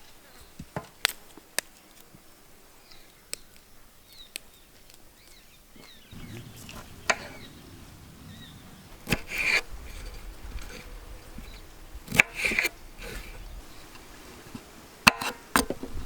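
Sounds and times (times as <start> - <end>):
scraping rustle: 6.1 - 16.0.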